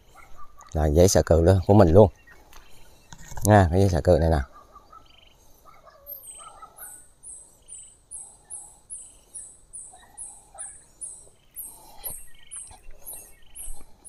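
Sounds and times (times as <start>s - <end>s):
lower bird calls: 4.2s - 14.0s
bird high chirp: 4.3s - 14.0s.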